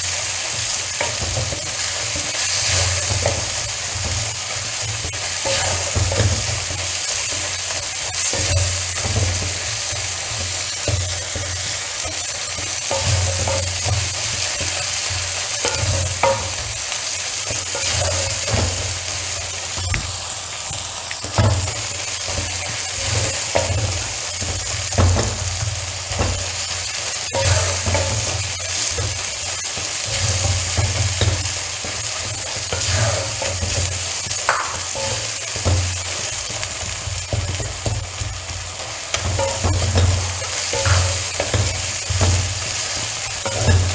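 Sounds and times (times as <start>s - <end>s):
spatula scraping a pan: 0.0s - 43.9s
vegetables sizzling in oil: 0.0s - 43.9s.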